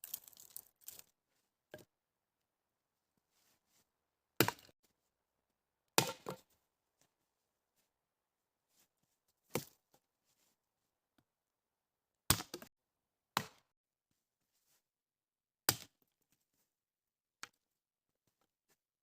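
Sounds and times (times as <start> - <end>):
wood being chopped: 4.4 - 4.7, 6.0 - 6.4, 12.3 - 12.7.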